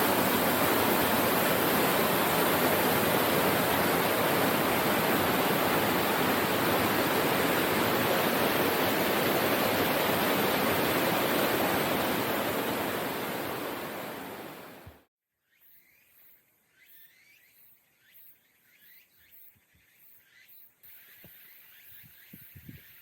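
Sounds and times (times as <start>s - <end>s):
waterfall pouring: 0.0s - 14.4s.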